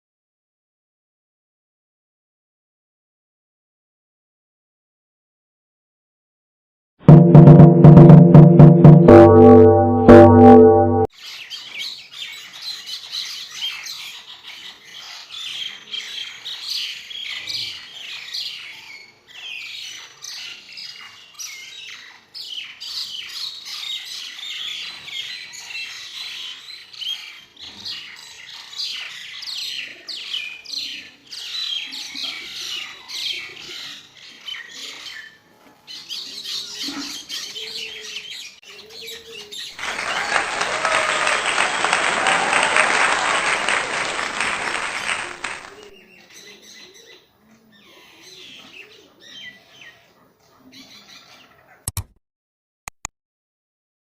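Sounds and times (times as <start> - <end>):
birds squawking and chirping: 11.2 - 39.8, 46.0 - 51.8.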